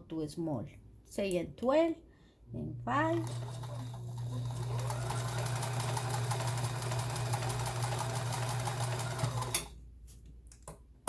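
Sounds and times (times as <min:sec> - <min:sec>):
sewing machine stitching: 0:03.1 - 0:09.7.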